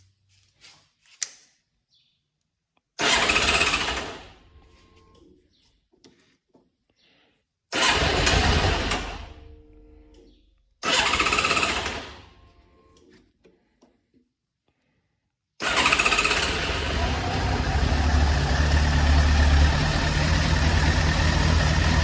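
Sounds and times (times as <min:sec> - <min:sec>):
motorcycle engine starting: 0:03.0 - 0:04.5, 0:07.7 - 0:09.6, 0:10.8 - 0:12.4, 0:15.6 - 0:22.0.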